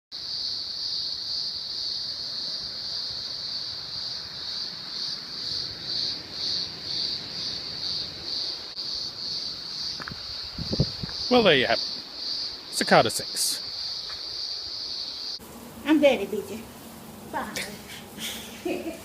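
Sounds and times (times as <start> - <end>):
cicadas buzzing: 0.1 - 19.0.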